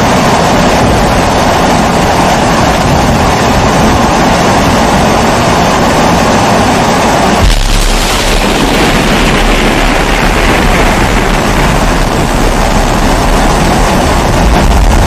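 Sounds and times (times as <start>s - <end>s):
low rumble: 7.1s - 15.0s.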